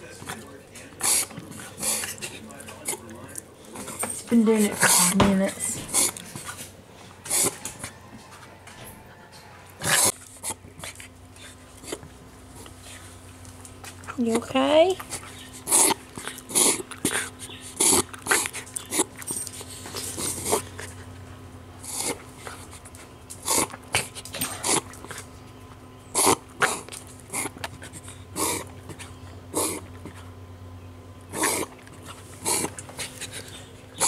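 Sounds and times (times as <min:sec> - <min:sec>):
dog breathing noisily: 0:00.0 - 0:07.9, 0:15.0 - 0:25.4, 0:26.1 - 0:30.3, 0:31.3 - 0:34.0.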